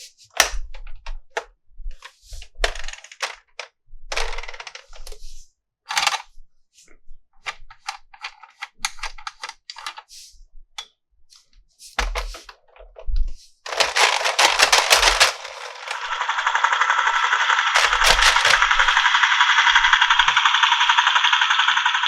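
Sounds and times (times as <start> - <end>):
plastic parts clicking: 2.6 - 5.2, 5.9 - 6.3, 7.4 - 10.1, 13.7 - 20.4
packaging crinkling: 13.7 - 16.1, 17.8 - 18.7.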